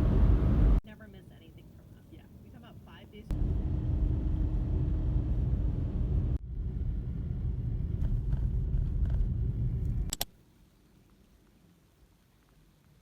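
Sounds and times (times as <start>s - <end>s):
moving vehicle rumble: 0.0s - 0.8s, 3.3s - 10.2s.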